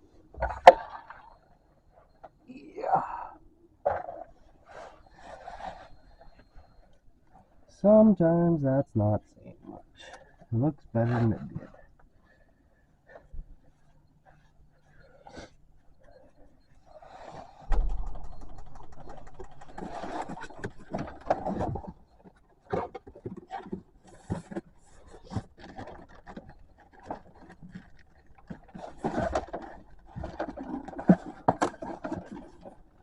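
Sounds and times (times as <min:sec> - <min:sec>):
scraping and rubbing in engine: 0:16.8 - 0:33.0.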